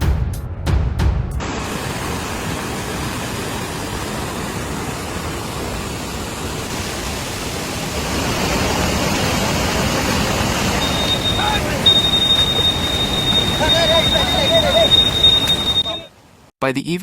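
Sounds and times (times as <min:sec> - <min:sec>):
fast-moving water rushing: 0:01.4 - 0:16.5.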